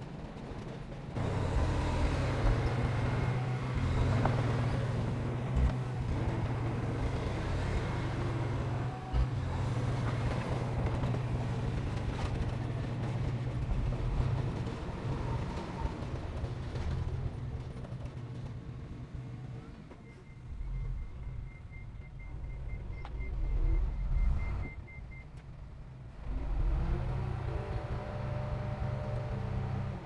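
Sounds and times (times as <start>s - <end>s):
heavy diesel engine droning: 1.2s - 18.0s, 26.2s - 30.0s.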